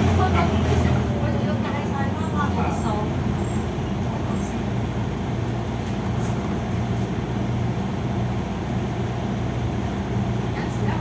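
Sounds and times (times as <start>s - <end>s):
bus diesel engine hum: 0.0s - 11.0s
road noise: 0.0s - 11.0s.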